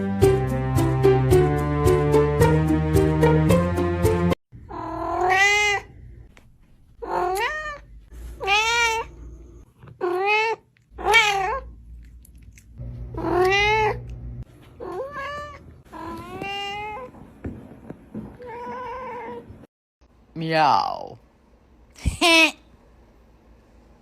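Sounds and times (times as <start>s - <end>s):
cat meowing: 4.6s - 5.9s, 7.0s - 9.2s, 10.0s - 11.7s, 13.2s - 14.0s, 14.8s - 17.1s.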